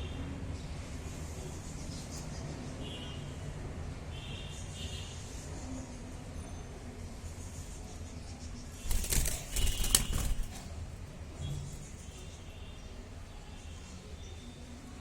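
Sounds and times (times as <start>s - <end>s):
budgerigar wings flapping: 8.8s - 10.8s.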